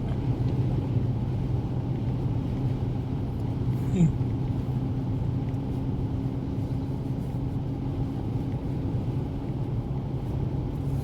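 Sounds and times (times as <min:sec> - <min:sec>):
low engine hum: 0:00.0 - 0:11.0
road rumble inside car: 0:00.0 - 0:11.0.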